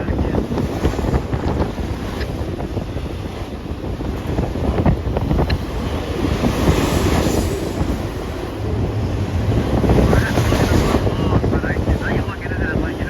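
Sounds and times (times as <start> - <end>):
freight train cars rumbling past: 0.0 - 13.0
wind buffeting microphone: 0.0 - 13.0.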